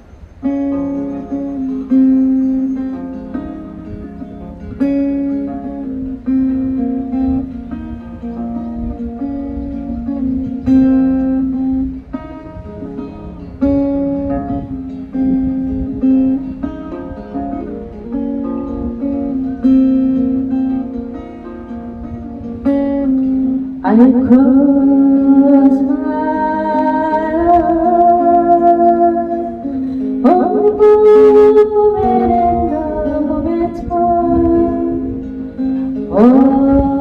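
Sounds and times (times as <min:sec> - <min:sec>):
acoustic guitar strumming chords: 0:00.0 - 0:37.0
person singing: 0:23.8 - 0:37.0.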